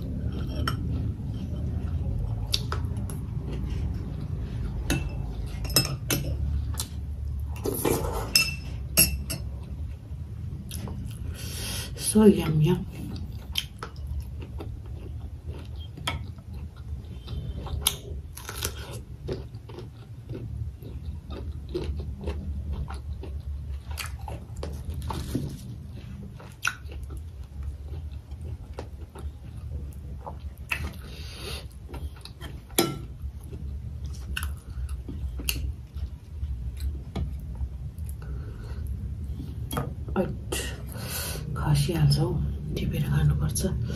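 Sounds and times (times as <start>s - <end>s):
steady low hum: 0.0s - 43.9s
crisp chewing crunches: 13.3s - 29.6s.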